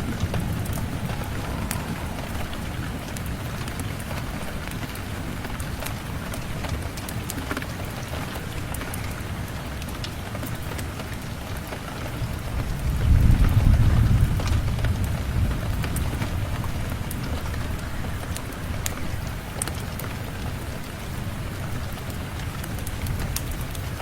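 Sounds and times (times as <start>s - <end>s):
thunder rumbling: 0.0s - 9.5s, 12.0s - 19.6s
steady rain: 0.0s - 24.0s.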